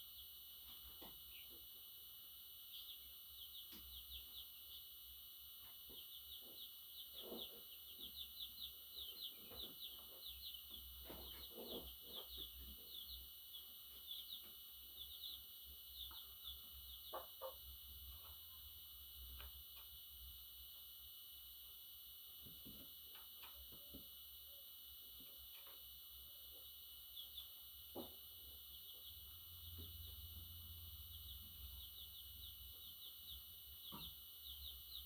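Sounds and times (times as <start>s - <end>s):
budgerigar chirping: 6.2s - 13.2s.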